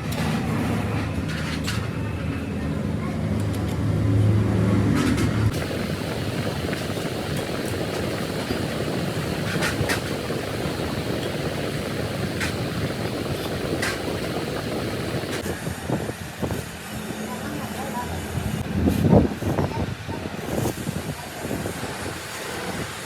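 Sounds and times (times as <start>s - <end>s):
steady mechanical rumble: 5.0s - 15.5s
low hum: 5.5s - 15.4s.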